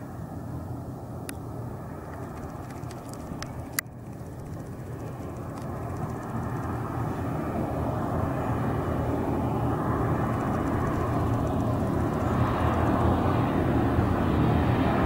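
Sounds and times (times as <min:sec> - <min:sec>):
airliner engine rumble: 0:00.0 - 0:15.0
sharp click: 0:02.0 - 0:06.8, 0:10.3 - 0:12.3.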